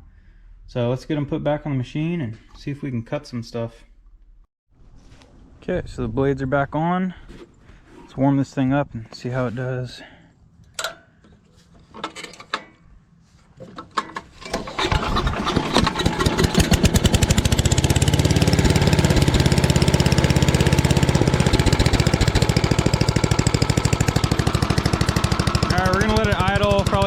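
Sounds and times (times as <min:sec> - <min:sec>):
small engine starting and running: 0:14.4 - 0:27.0.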